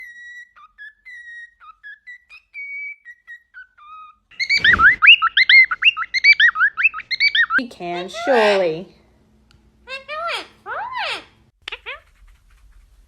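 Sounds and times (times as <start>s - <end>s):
parrot whistling: 0.0s - 7.6s.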